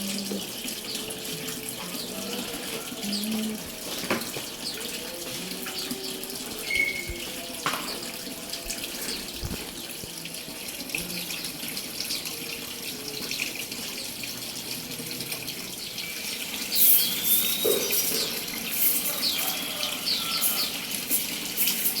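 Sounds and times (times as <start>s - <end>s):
running water splashing: 0.0s - 22.0s
small birds chirping: 15.7s - 22.0s.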